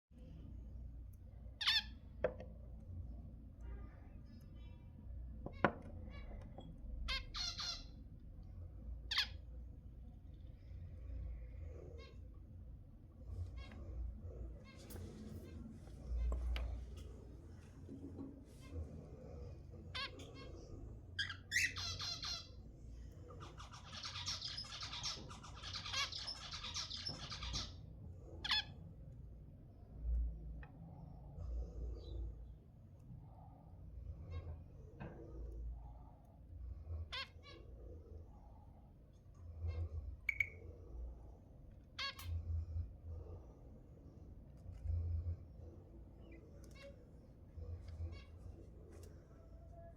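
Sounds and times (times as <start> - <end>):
zebra finches calling: 7.1 - 8.0, 21.2 - 22.6, 23.4 - 27.8, 40.2 - 40.6
fast chattering bird song: 23.3 - 28.6.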